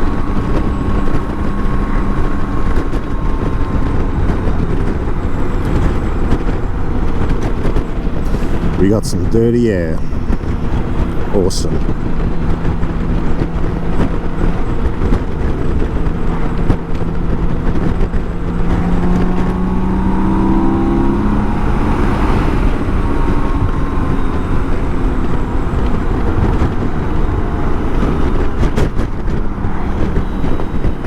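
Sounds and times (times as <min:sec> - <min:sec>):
motorcycle engine running: 0:00.0 - 0:31.0
wind buffeting microphone: 0:00.0 - 0:31.0.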